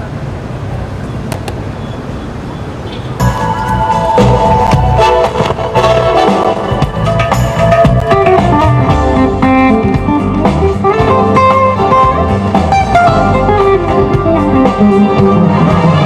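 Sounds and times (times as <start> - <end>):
guitar: 3.2 - 16.0
live band playing: 3.2 - 16.0.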